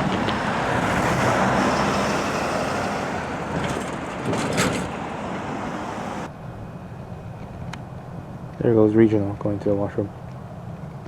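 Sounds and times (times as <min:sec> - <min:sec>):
freight train rumbling past: 0:00.0 - 0:07.3.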